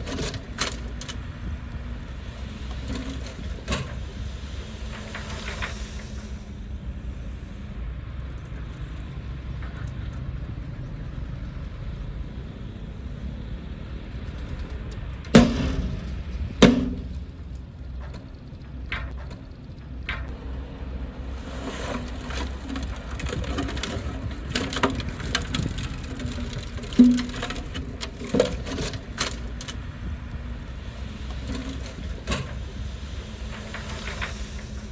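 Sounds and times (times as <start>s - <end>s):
rattling and clattering: 0.0s - 6.3s, 14.1s - 20.4s, 21.5s - 34.9s
diesel machinery rumbling: 0.0s - 34.9s
loud bangs: 15.4s - 17.5s.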